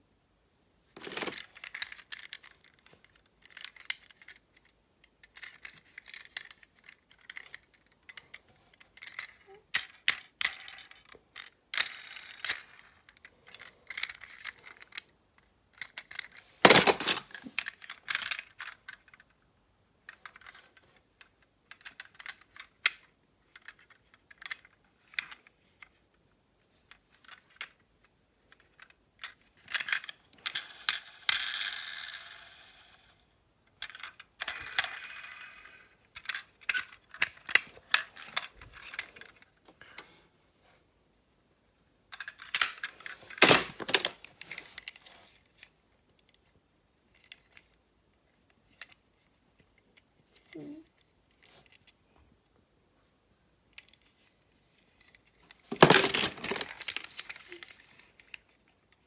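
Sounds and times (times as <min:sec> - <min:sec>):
small hard objects clattering: 0:01.0 - 0:01.9, 0:16.6 - 0:17.7, 0:42.6 - 0:44.2, 0:55.7 - 0:57.7.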